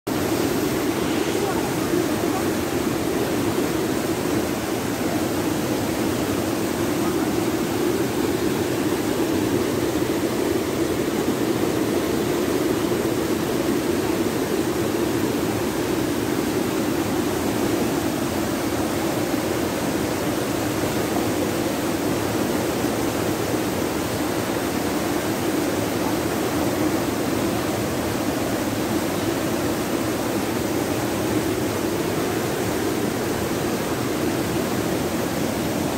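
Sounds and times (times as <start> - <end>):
river water rushing: 0.1 - 35.9.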